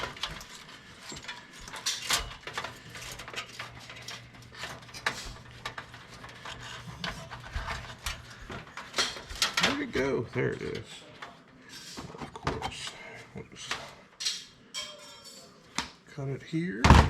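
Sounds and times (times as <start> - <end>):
computer parts clinking and knocking: 0.0 - 11.4.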